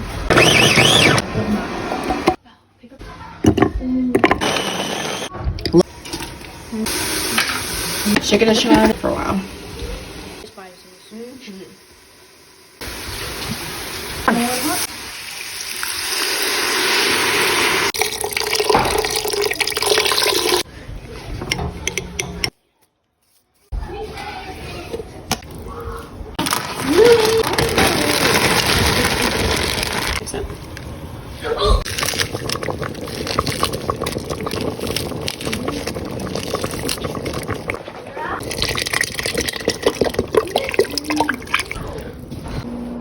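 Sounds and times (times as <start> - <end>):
water running into sink: 5.8 - 10.5, 12.8 - 20.7, 26.4 - 30.5, 31.8 - 42.1
soup bubbling in a pot: 12.8 - 20.7, 31.8 - 42.0.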